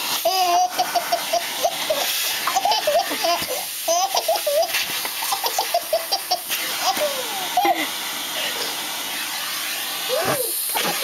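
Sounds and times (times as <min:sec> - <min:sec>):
vacuum cleaner hiss: 0:00.0 - 0:11.0
baby giggling: 0:00.3 - 0:07.9.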